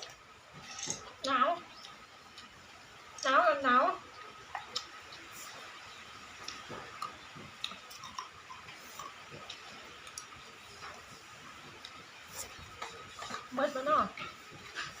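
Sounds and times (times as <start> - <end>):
person chewing: 6.4 - 11.0.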